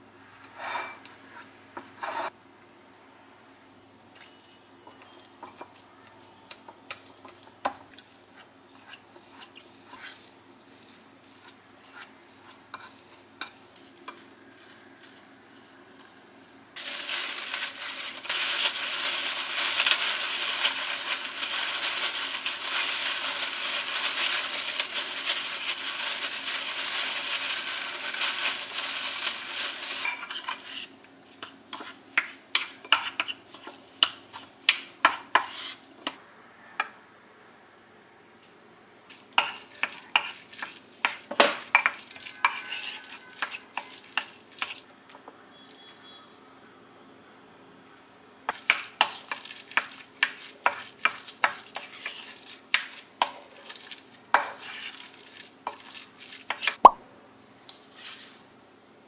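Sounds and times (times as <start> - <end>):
food sizzling in a frying pan: 11.8 - 35.8, 39.1 - 44.9, 48.5 - 56.9.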